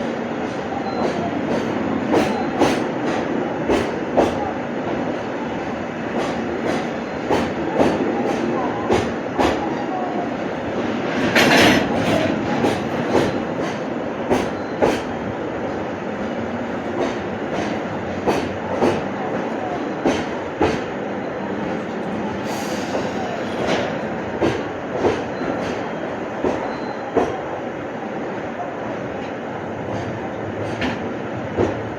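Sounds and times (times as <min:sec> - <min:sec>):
train wheels clacking over rail joints: 0:00.4 - 0:09.7, 0:11.1 - 0:21.0, 0:21.7 - 0:27.4, 0:29.8 - 0:31.9
train wheel squeal: 0:00.5 - 0:03.0, 0:11.4 - 0:15.2, 0:25.2 - 0:27.4.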